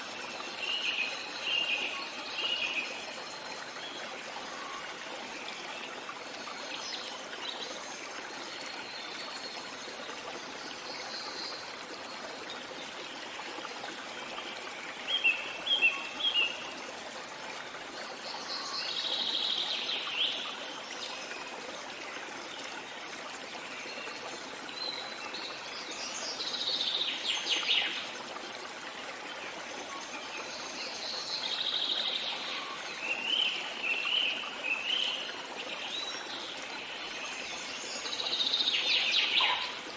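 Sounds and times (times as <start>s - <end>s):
stream flowing: 0.0s - 39.9s
songbirds singing: 29.4s - 39.9s.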